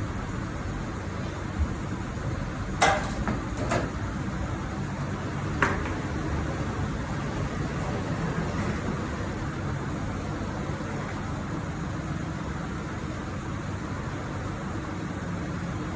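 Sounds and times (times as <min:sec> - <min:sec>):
metallic clanks of tools: 0:02.8 - 0:04.0.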